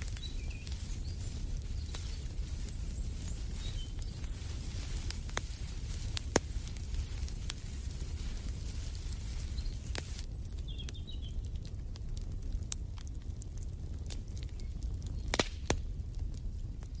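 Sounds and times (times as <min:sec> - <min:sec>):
faint bird chirps: 0:00.0 - 0:04.5
fire popping: 0:00.0 - 0:17.0
fire rumbling: 0:00.0 - 0:17.0.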